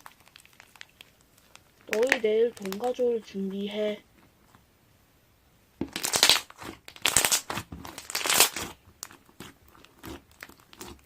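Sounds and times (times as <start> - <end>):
rustling and crinkling: 0.0 - 4.7, 5.8 - 11.0.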